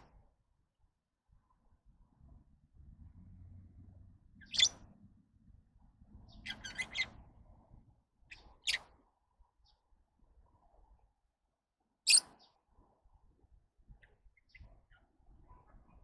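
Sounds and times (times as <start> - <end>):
faint low rumble: 0.0 - 11.5
lovebirds chirping: 4.4 - 4.8, 6.2 - 7.2.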